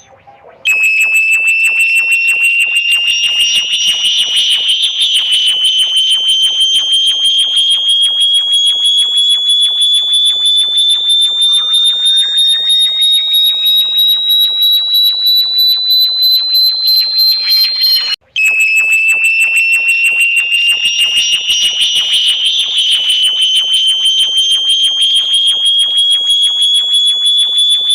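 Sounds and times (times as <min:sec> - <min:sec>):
pulsing high-pitched electronic sweep: 0:00.0 - 0:27.9
faint electronic tone gliding upward: 0:20.0 - 0:26.8.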